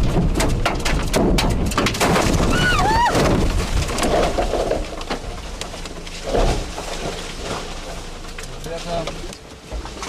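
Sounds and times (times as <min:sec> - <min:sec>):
hard knocks and bangs: 0:00.0 - 0:07.1
rising and falling wail: 0:02.4 - 0:03.4.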